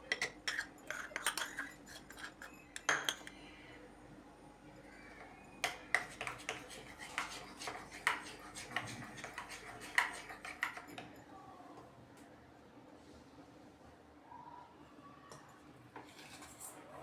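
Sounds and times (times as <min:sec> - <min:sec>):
utensil clinking against a dish: 0:00.0 - 0:03.5, 0:05.6 - 0:11.2.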